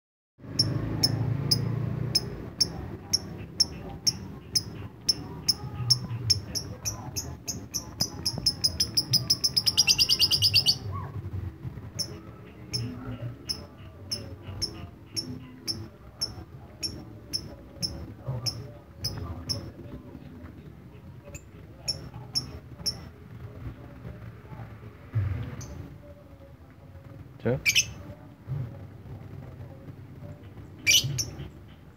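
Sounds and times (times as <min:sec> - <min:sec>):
lovebird chirping and trilling: 0:00.5 - 0:10.9, 0:27.6 - 0:28.0, 0:30.8 - 0:31.8.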